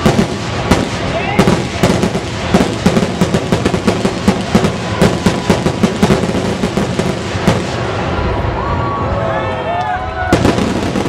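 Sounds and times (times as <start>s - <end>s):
fireworks shells bursting: 0.0s - 8.0s
continuous rumble: 0.0s - 11.0s.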